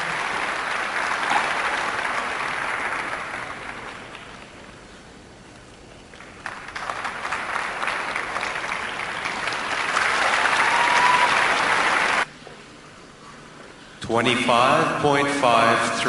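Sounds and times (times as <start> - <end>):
crowd applauding: 0.0 - 4.7, 6.1 - 12.3.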